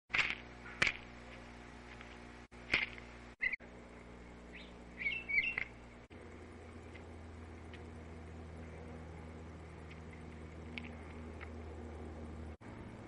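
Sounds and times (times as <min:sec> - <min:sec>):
steady low hum: 0:00.1 - 0:13.0
songbirds calling: 0:03.4 - 0:03.7, 0:04.4 - 0:06.0.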